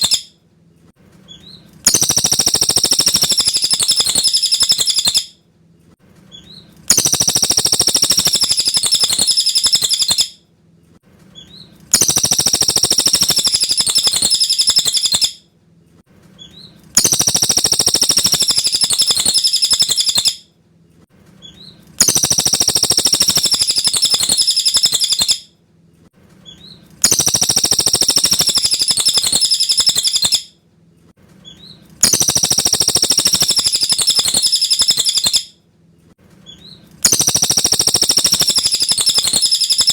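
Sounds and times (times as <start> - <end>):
bird singing rapid chattering phrase: 0.0 - 0.3, 1.3 - 5.3, 6.4 - 10.3, 11.4 - 15.4, 16.4 - 20.4, 21.4 - 25.4, 26.5 - 30.5, 31.5 - 35.5, 36.5 - 39.9.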